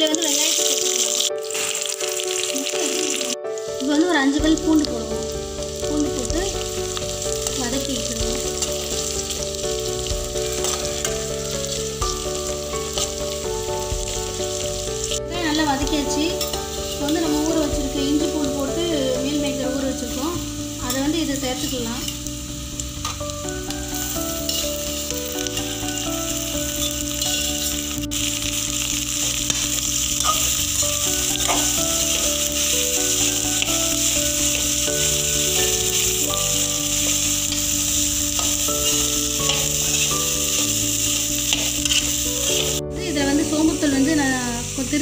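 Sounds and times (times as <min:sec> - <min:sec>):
food sizzling in hot oil: 0:00.0 - 0:45.0
metal spoon stirring: 0:10.4 - 0:11.2, 0:16.3 - 0:17.7, 0:24.4 - 0:27.8, 0:29.2 - 0:42.8.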